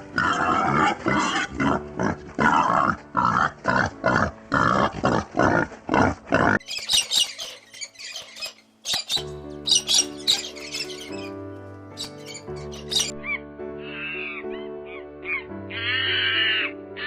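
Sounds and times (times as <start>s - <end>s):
pig grunting and oinking: 0.0s - 7.6s.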